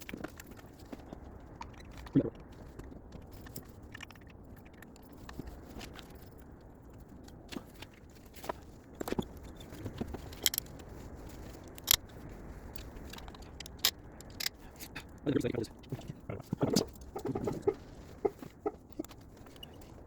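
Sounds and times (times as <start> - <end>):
sharp clicks and clinks: 10.2 - 10.8, 11.7 - 12.1, 13.0 - 15.1.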